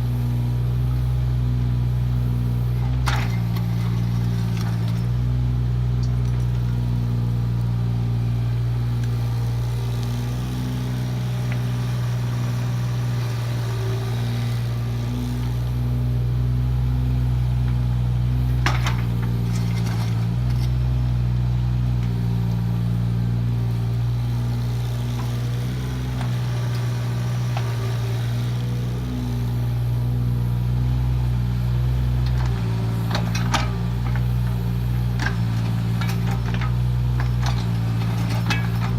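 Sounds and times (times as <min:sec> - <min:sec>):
diesel excavator engine running: 0:00.0 - 0:38.9.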